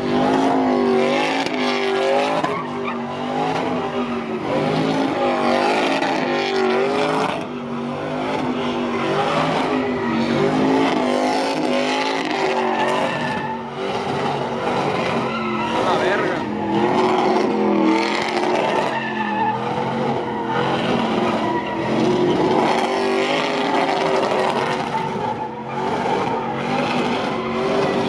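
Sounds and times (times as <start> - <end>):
tires squealing: 0.0 - 28.0
truck engine revving high: 0.0 - 28.0.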